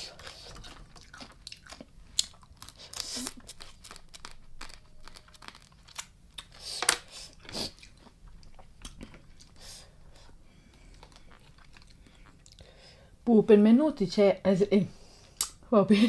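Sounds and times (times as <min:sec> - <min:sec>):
chewing and crunching food: 0:00.0 - 0:06.7, 0:07.3 - 0:13.0.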